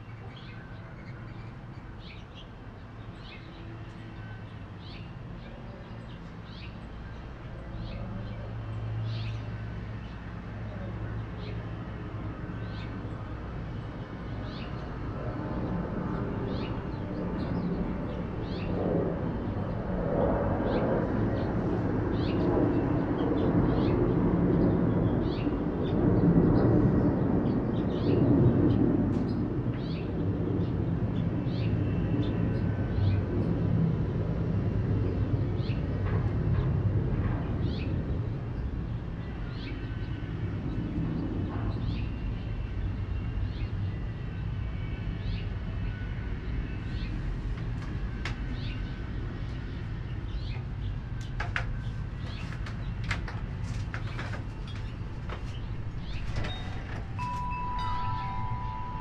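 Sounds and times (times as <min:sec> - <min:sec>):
birds chirping: 0:46.7 - 0:59.0
low rumbling noise: 0:47.1 - 0:59.0.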